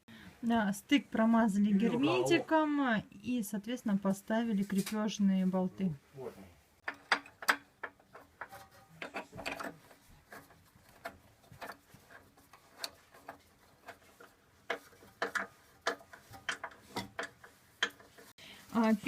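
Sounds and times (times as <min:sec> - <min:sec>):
tools clicking on metal bolts: 0:06.8 - 0:18.3.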